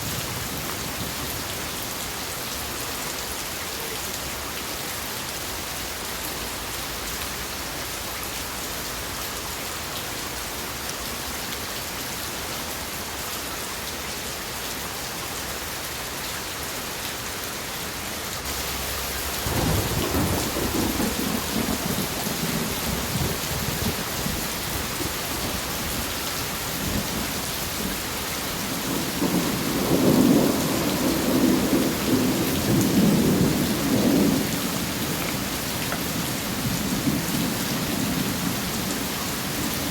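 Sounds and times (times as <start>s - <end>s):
steady rain falling: 0.0s - 39.9s
thunder rumbling: 18.6s - 26.0s, 26.8s - 39.0s.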